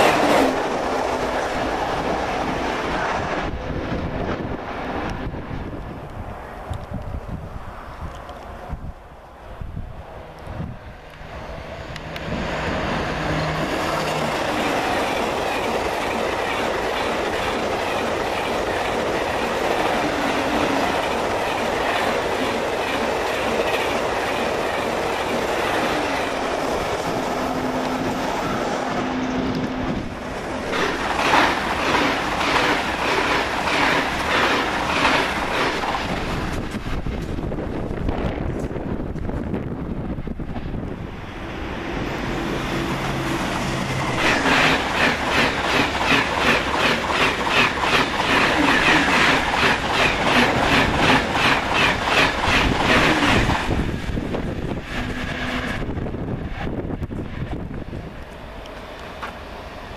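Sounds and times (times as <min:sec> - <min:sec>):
high-speed train rushing past: 0:00.0 - 0:59.9
train wheels clacking over joints: 0:30.5 - 0:37.4, 0:44.1 - 0:54.0.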